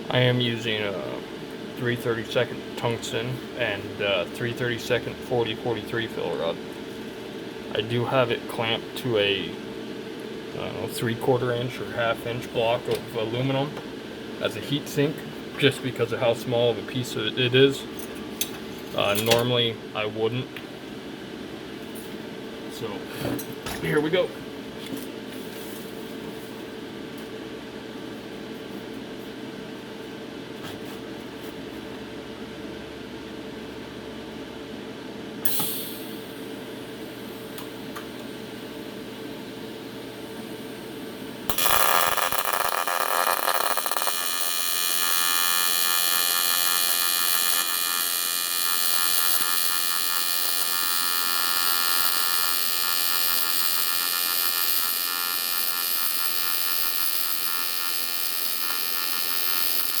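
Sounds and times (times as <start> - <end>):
steady hum: 0.0 - 60.0
welding arc buzzing: 40.6 - 60.0.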